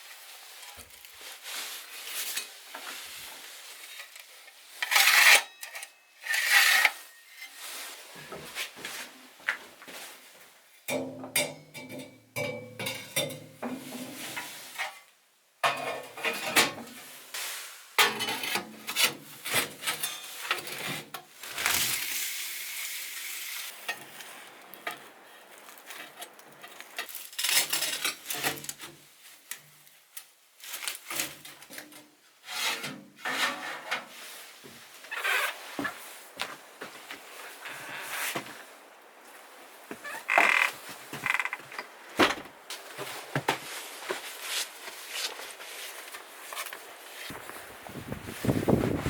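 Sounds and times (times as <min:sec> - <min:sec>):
steady hiss: 0:21.9 - 0:27.0.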